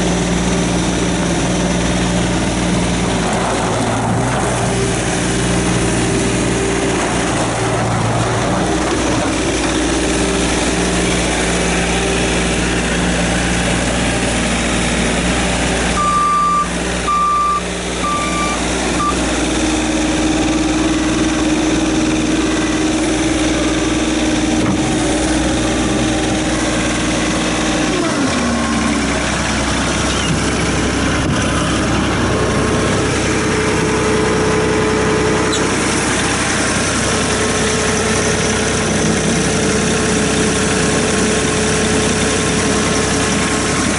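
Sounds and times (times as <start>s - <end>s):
diesel engine running: 0.0s - 43.9s
short high beeps: 16.0s - 19.2s.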